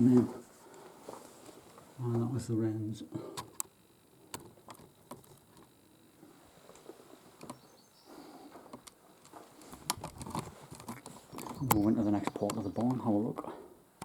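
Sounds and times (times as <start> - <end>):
soft rustling: 0.0 - 2.3, 6.2 - 7.5, 8.1 - 11.6.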